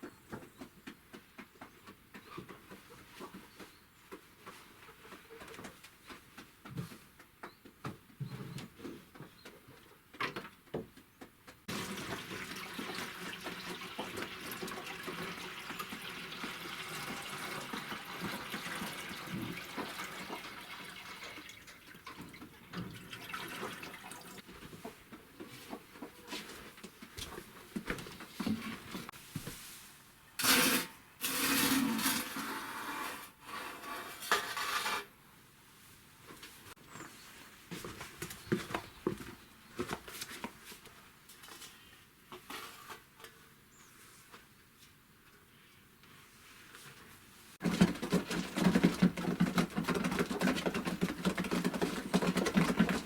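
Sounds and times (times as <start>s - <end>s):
water running: 11.7s - 24.4s.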